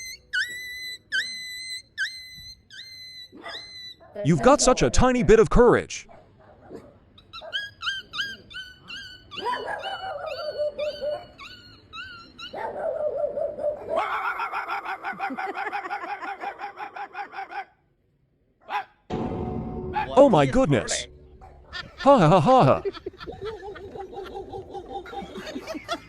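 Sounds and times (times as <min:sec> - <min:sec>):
dogs yipping: 0:00.0 - 0:04.3, 0:06.1 - 0:17.8, 0:18.6 - 0:19.0, 0:21.4 - 0:22.1, 0:22.8 - 0:26.0
dog howling: 0:03.2 - 0:04.2, 0:07.4 - 0:17.7.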